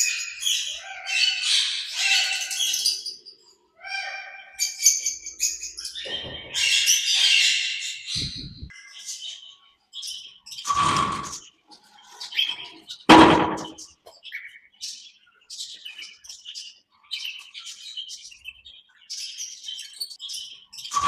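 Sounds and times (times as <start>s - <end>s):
small parrots chirping and calling: 0.0s - 21.0s
loud harsh parrot call: 0.6s - 3.0s, 3.8s - 4.9s.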